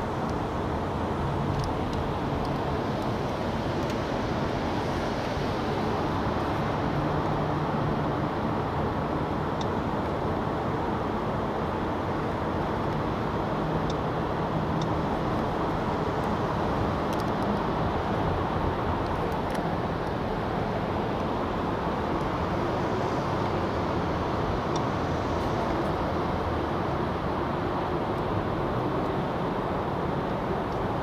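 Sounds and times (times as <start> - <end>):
low engine hum: 0.0 - 31.0.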